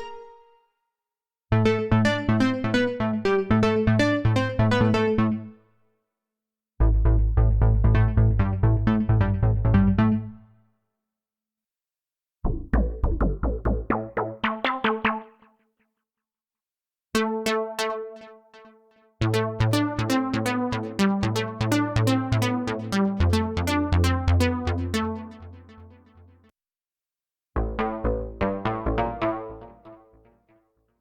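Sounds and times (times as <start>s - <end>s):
pulsing synth bass: 6.8s - 10.4s, 12.5s - 15.3s, 27.6s - 30.1s
synthesizer plucked arpeggios: 12.5s - 15.5s, 27.6s - 30.4s.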